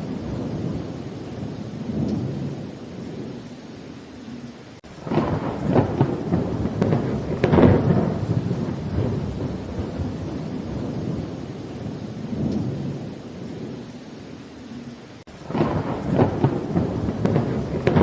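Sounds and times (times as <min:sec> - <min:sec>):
steady rain: 0:00.0 - 0:18.0
thunder rumbling: 0:00.0 - 0:18.0
thunder cracking: 0:04.9 - 0:13.8, 0:15.3 - 0:18.0.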